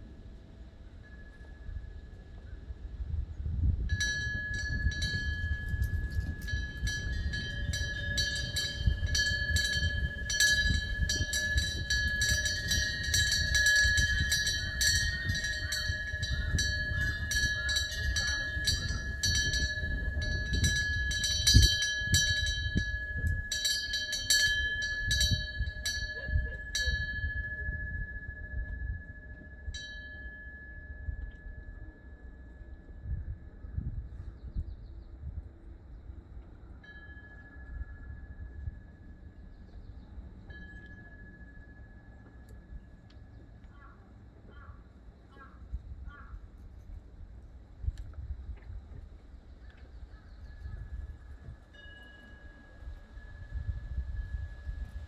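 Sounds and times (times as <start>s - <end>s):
wind rumble on microphone: 0.0s - 55.0s
wind bell ringing: 3.9s - 34.4s, 36.6s - 43.5s, 50.3s - 55.0s.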